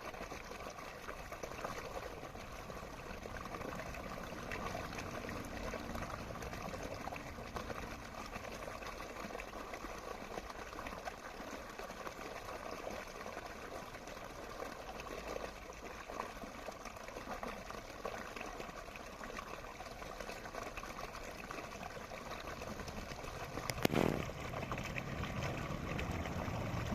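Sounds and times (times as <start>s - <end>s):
stream water trickling: 0.0s - 26.9s
brief loud thump: 23.8s - 24.3s.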